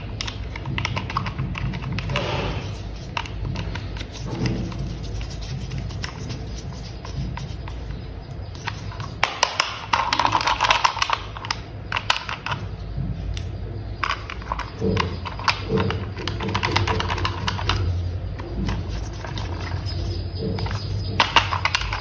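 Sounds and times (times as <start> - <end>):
plastic toy parts clicking: 8.6 - 12.6.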